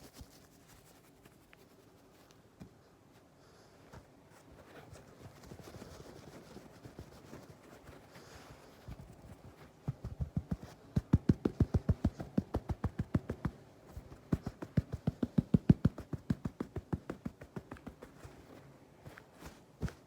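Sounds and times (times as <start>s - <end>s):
rapid dull tapping: 9.0s - 18.4s.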